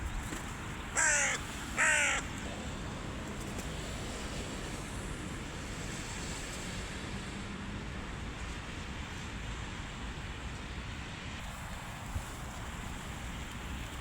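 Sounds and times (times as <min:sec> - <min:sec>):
crow cawing: 0:01.0 - 0:02.4.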